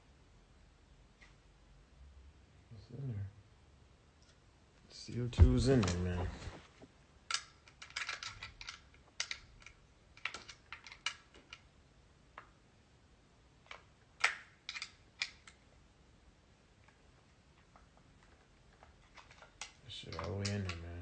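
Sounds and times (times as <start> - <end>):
bb gun handling clicks: 7.3 - 11.7, 13.7 - 15.6, 19.1 - 21.0.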